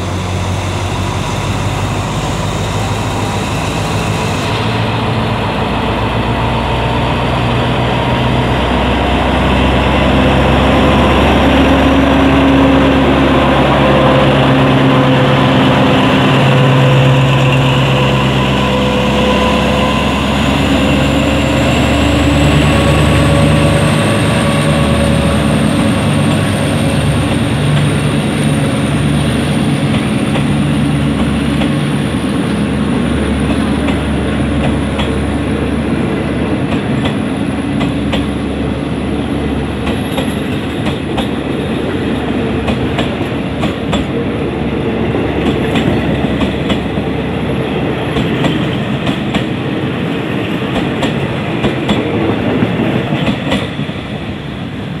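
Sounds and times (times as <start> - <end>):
low diesel engine drone: 0.0 - 50.1
train wheels clicking over rail joints: 21.3 - 35.7, 36.5 - 38.5, 39.7 - 44.2, 45.2 - 47.1, 48.0 - 54.1.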